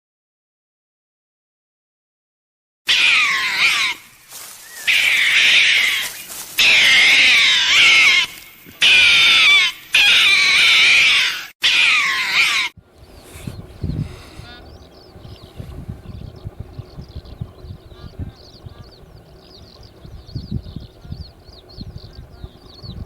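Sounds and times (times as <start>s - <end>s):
animal making harsh high calls: 2.9s - 14.7s.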